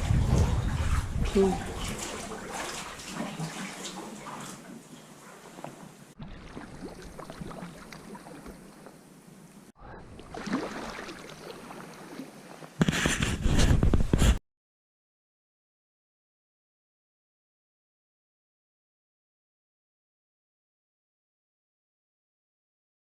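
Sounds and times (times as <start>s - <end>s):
wind on microphone: 0.0s - 2.4s, 12.9s - 14.4s
water splashing around kayak: 0.0s - 14.3s.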